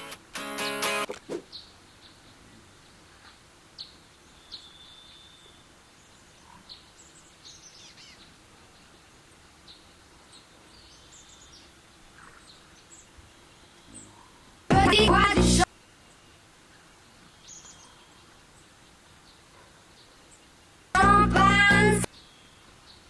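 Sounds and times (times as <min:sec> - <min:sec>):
steady low hiss: 0:00.0 - 0:23.0
small birds chirping: 0:01.4 - 0:14.6, 0:15.9 - 0:20.8.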